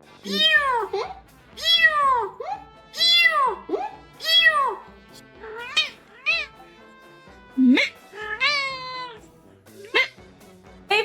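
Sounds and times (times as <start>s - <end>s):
light background music: 0.0s - 11.0s
cat meowing: 0.2s - 6.7s, 7.6s - 9.3s.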